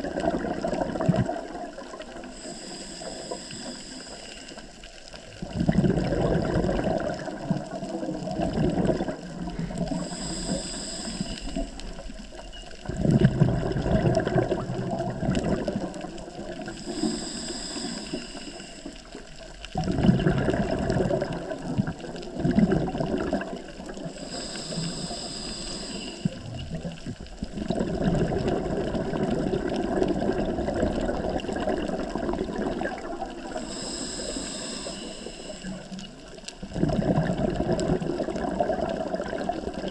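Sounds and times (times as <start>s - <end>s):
exhaled bubbles gurgling underwater: 0.0s - 39.9s
regulator inhalation hiss: 2.2s - 4.8s, 9.6s - 12.1s, 16.6s - 19.3s, 24.1s - 26.4s, 33.5s - 36.3s.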